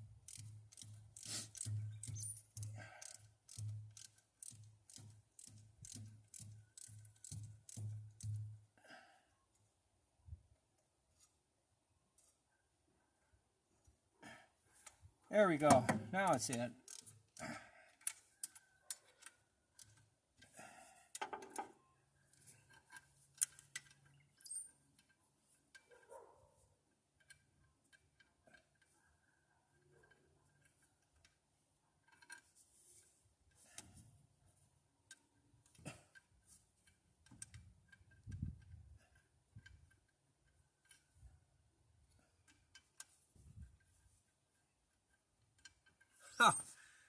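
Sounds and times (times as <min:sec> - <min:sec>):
metallic clicks of hand tools: 0:00.2 - 0:08.5, 0:15.7 - 0:20.5, 0:22.7 - 0:26.0.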